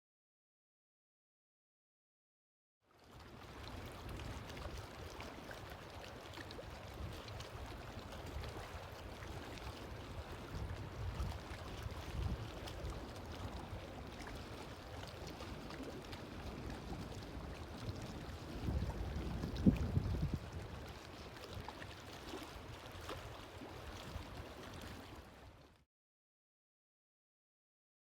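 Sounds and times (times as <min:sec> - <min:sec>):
wind gusting on microphone: 0:17.4 - 0:20.8.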